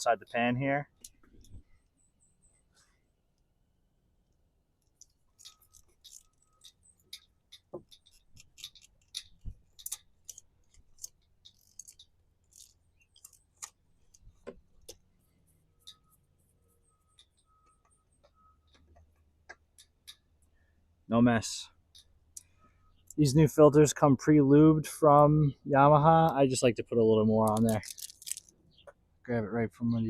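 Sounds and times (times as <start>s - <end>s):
hand tools clicking on metal: 5.0s - 13.7s.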